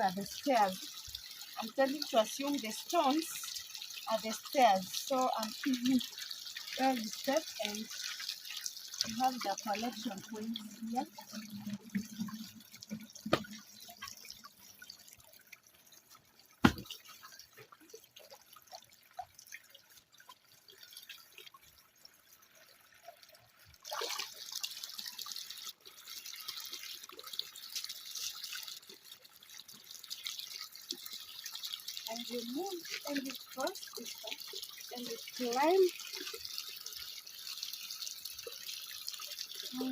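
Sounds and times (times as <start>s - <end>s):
water dripping and trickling: 0.0s - 39.9s
sharp knocks: 16.6s - 16.9s.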